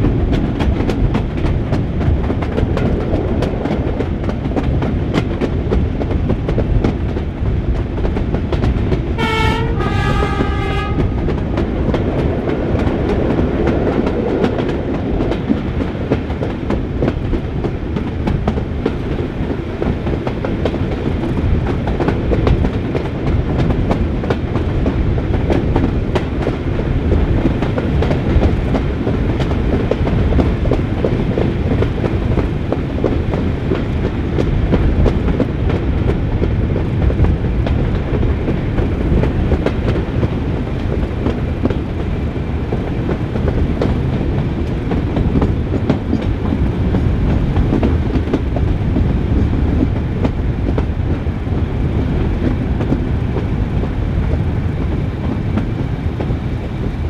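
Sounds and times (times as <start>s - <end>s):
train carriage rumble: 0.0s - 57.0s
wheels clicking over rail joints: 0.0s - 57.0s
two-tone locomotive horn: 9.2s - 11.4s.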